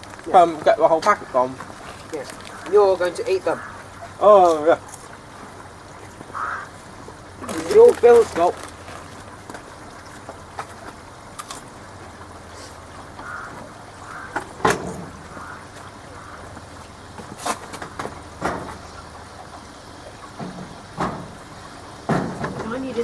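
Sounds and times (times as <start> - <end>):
washing machine humming: 0.0 - 23.0
sharp crackles and clicks: 7.4 - 11.8.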